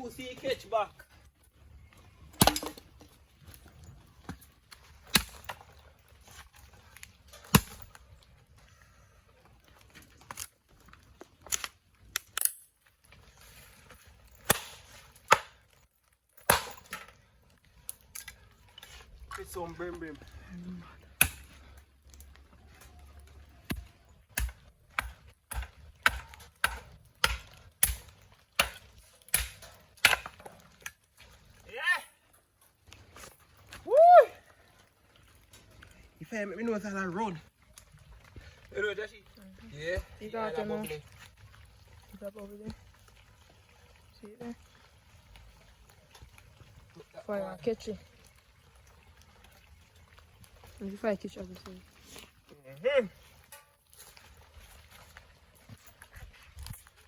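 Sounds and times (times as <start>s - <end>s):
wood fire cracking and snapping: 0.0s - 57.0s
chopping firewood strokes: 2.2s - 8.2s, 10.2s - 19.6s, 21.0s - 31.6s.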